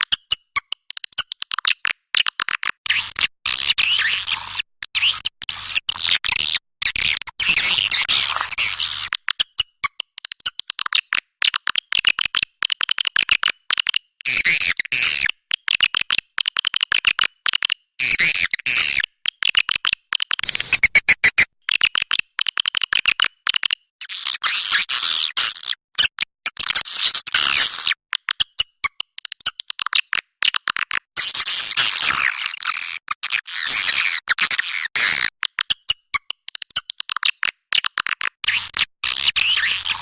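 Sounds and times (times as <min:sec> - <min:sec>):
high twittering bird chirps: 0:20.4 - 0:21.4.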